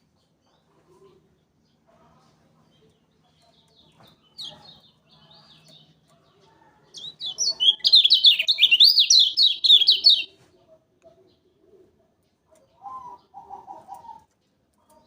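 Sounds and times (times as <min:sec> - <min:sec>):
faint high bird chirps: 0:06.5 - 0:10.4
bird singing fast slurred notes: 0:07.0 - 0:10.3.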